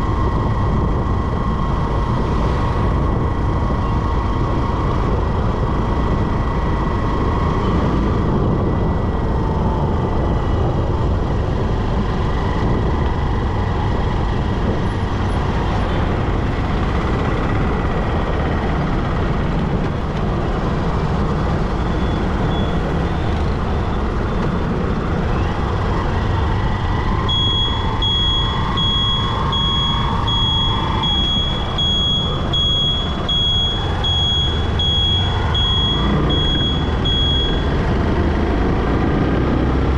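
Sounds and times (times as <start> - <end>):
road and traffic rumble: 0.0 - 39.9
high electronic beep pulsing: 21.8 - 23.2, 27.0 - 37.9.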